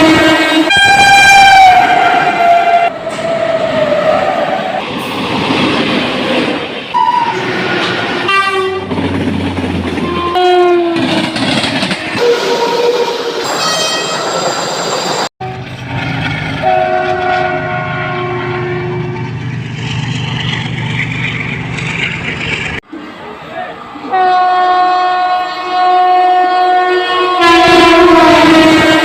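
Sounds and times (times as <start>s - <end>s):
locomotive horn blasts: 0.0s - 2.9s, 8.2s - 8.9s, 10.0s - 11.1s, 12.2s - 14.3s, 16.6s - 19.2s, 24.1s - 29.0s
train rumbling on track: 0.0s - 29.0s.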